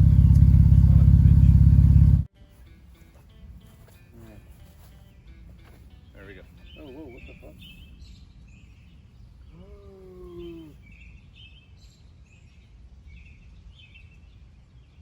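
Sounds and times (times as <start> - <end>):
birds chirping: 0.0 - 2.3, 4.2 - 15.0
held tone dropping in pitch: 0.0 - 2.3.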